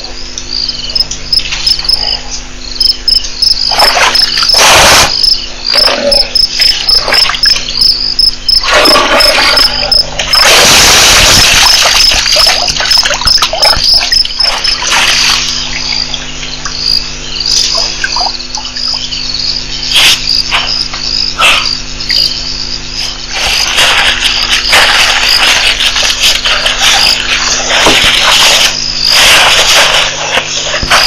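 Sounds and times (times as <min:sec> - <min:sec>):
cricket chirping: 0:00.0 - 0:31.0
low steady hum: 0:00.0 - 0:31.0
bursts of noise: 0:02.9 - 0:18.5.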